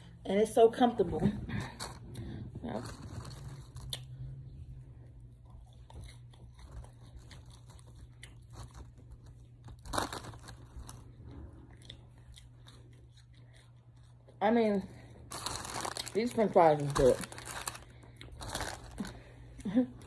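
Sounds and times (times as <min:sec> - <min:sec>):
faint low hum: 0:00.0 - 0:20.0
chewing french fries: 0:01.7 - 0:20.0
paper wrapper crinkling: 0:02.6 - 0:04.1, 0:06.6 - 0:11.1, 0:15.3 - 0:19.8.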